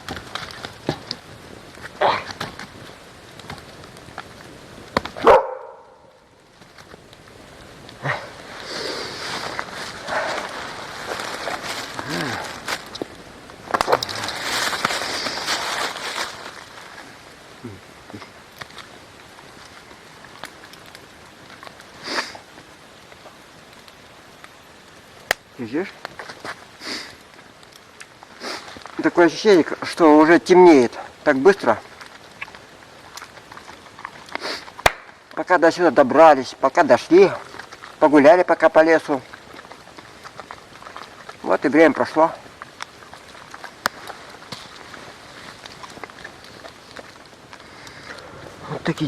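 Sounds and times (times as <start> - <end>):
campfire crackling and popping: 0.0 - 49.0
steady hiss: 0.0 - 49.0
dog barking: 5.2 - 6.1.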